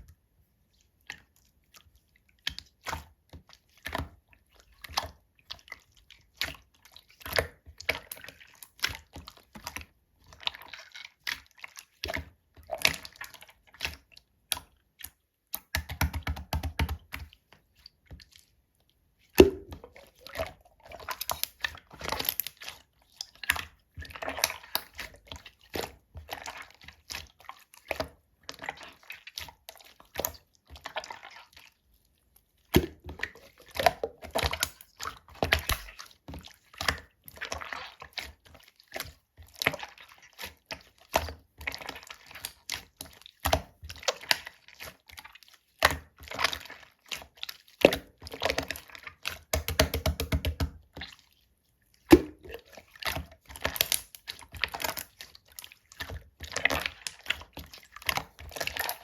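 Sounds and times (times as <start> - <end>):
slime squished by hand: 52.0 - 59.0.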